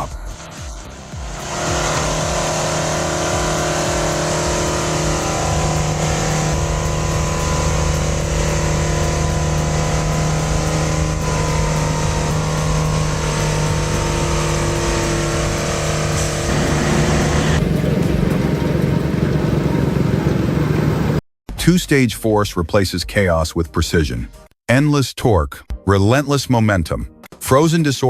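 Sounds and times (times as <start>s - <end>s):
heavy diesel engine drone: 0.0s - 21.2s
steady rushing noise: 0.4s - 21.2s.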